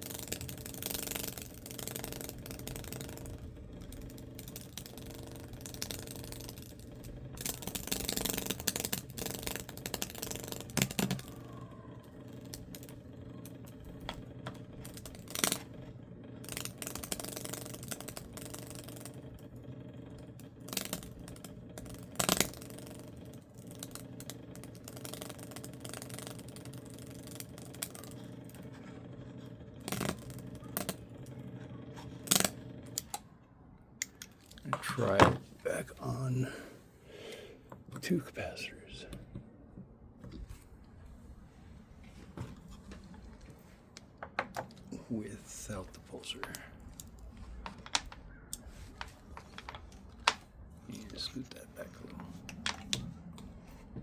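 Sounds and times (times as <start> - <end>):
electric arc crackling and sizzling: 0.0 - 33.2
transformer hum: 0.0 - 54.0.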